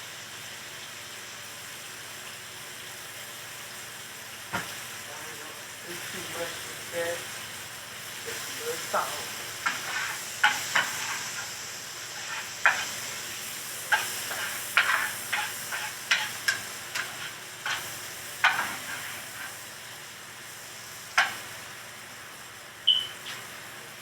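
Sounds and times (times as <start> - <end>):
food sizzling in a frying pan: 0.0 - 24.0
utensil scraping and tapping pan: 12.2 - 12.9, 13.9 - 19.5.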